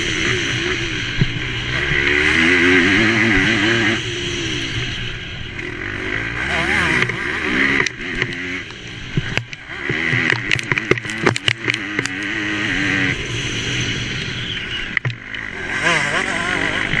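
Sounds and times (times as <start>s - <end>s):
motocross bike engine revving: 0.0s - 17.0s
sharp knocks and clatters: 9.2s - 12.2s.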